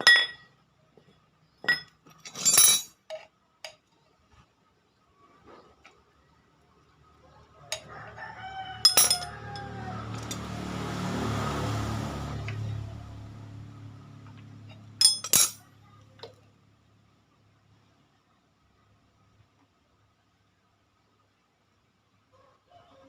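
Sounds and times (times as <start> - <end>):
metallic tool clinks: 1.6 - 3.2, 8.9 - 9.4, 15.0 - 15.7
rooster crowing: 7.4 - 11.6, 22.3 - 23.0.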